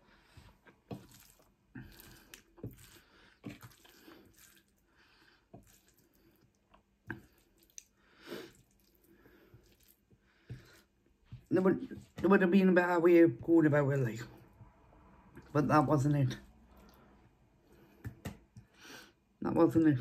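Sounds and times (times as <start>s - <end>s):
chewing soft food: 0.3s - 11.0s
wet mouth sounds: 7.1s - 9.0s.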